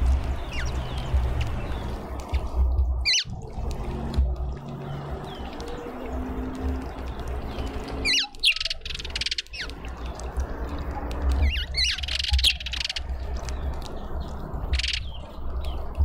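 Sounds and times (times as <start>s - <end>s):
birds chirping and chattering: 0.0s - 3.3s, 4.0s - 16.0s.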